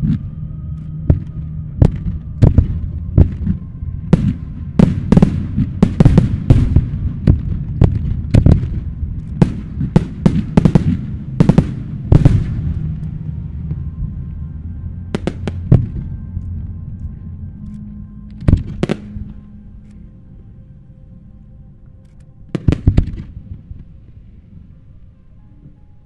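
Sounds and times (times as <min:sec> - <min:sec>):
steady low rumble: 0:00.0 - 0:26.0
fireworks bangs: 0:01.1 - 0:13.8, 0:15.1 - 0:16.2.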